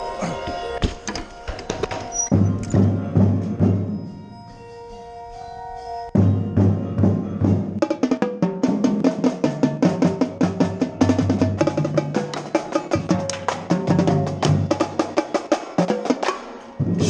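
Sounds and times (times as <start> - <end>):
bass drums: 16.8 - 17.0.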